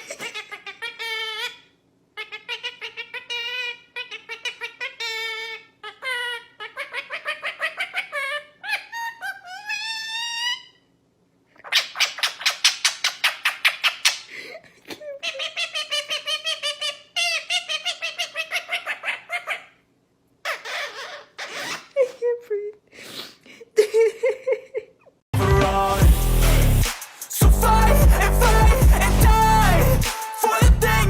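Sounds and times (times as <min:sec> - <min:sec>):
parrot warbling: 0:00.3 - 0:10.8, 0:11.6 - 0:14.3, 0:15.2 - 0:19.8, 0:20.4 - 0:22.0.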